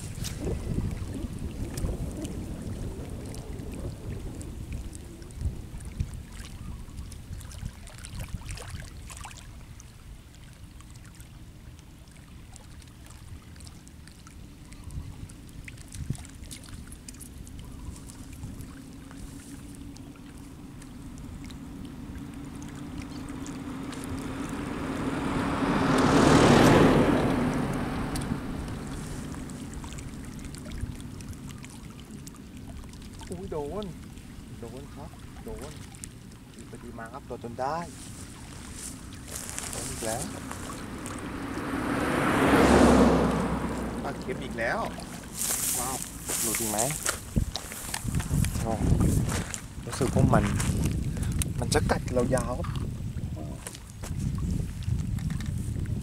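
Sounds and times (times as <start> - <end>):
wind rumbling on microphone: 0.0 - 56.0
engine passing: 18.2 - 50.9.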